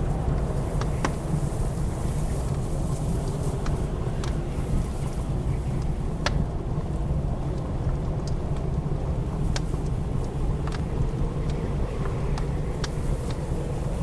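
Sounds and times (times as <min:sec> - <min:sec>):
blizzard wind roaring: 0:00.0 - 0:14.0
wood fire crackling and popping: 0:05.6 - 0:14.0.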